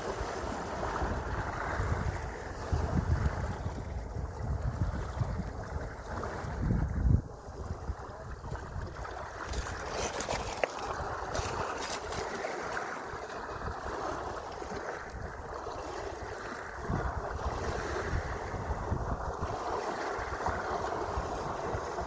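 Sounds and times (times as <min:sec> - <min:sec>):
sea waves washing: 0:00.0 - 0:22.0
wind buffeting microphone: 0:00.0 - 0:22.0.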